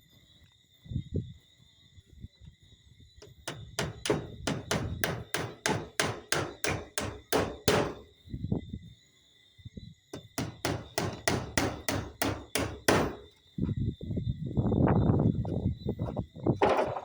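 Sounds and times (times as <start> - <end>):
hammer hitting a nail: 3.4 - 8.0, 10.2 - 13.3.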